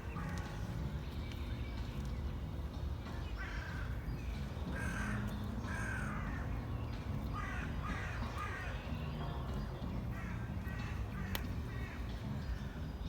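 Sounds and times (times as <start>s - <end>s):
crow cawing: 4.7s - 6.6s, 7.4s - 8.8s, 10.1s - 12.1s.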